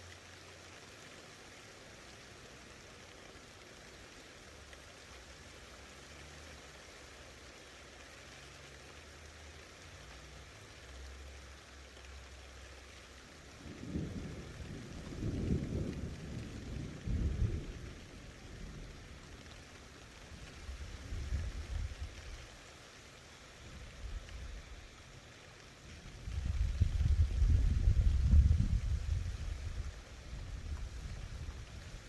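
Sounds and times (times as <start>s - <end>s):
rain hissing: 0.0s - 32.0s
thunder rolling: 13.7s - 19.0s, 26.2s - 32.0s.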